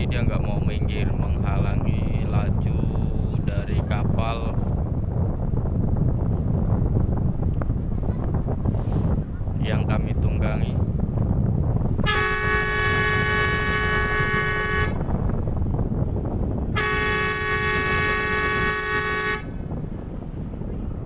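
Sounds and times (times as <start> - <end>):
wind rumble on microphone: 0.0 - 21.0
ship's horn long blasts: 12.0 - 15.1, 16.7 - 19.8.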